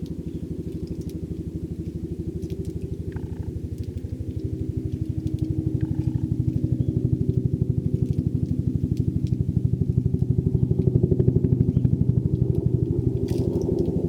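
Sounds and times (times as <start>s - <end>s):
small engine idling: 0.0s - 14.0s.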